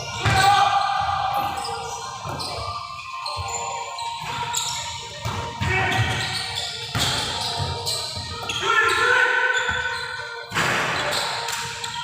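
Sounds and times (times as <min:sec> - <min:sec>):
balls bouncing on hard floor: 0:00.1 - 0:00.5, 0:05.2 - 0:09.0.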